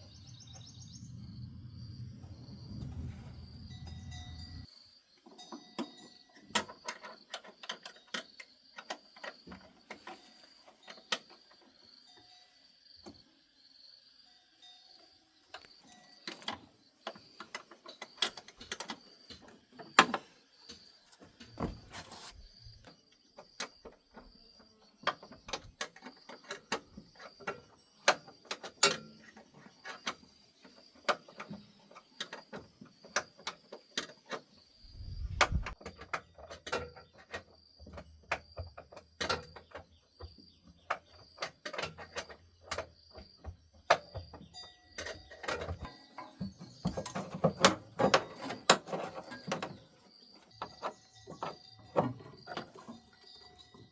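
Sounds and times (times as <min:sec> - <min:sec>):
low hum: 0:00.0 - 0:04.7, 0:34.8 - 0:35.8
hand tools clicking and knocking: 0:35.4 - 0:53.9.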